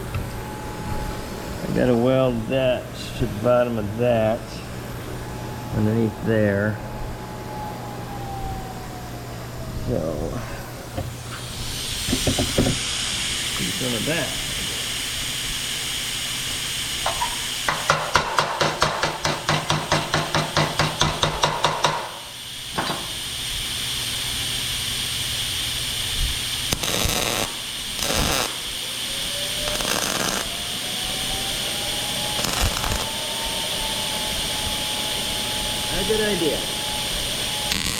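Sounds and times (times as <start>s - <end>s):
rising whine: 0.0s - 17.8s, 22.2s - 37.9s
welder bursts: 11.0s - 37.9s.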